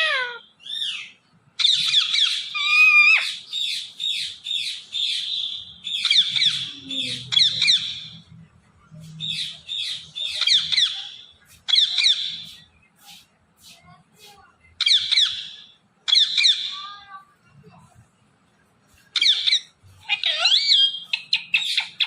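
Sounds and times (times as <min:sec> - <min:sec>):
parrot squawking: 0:00.0 - 0:08.1, 0:09.2 - 0:12.6, 0:14.8 - 0:16.9, 0:19.2 - 0:22.0.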